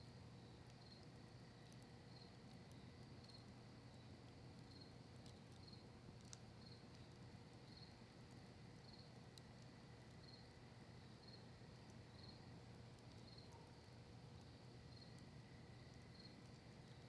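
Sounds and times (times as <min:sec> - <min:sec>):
campfire wood popping: 0:00.5 - 0:17.0
cricket chirping: 0:14.9 - 0:17.0.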